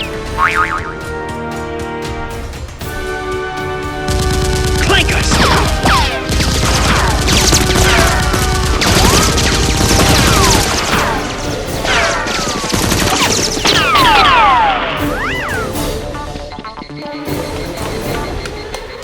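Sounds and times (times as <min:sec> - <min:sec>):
background music: 0:00.0 - 0:19.0
rapid gunfire: 0:03.0 - 0:15.2.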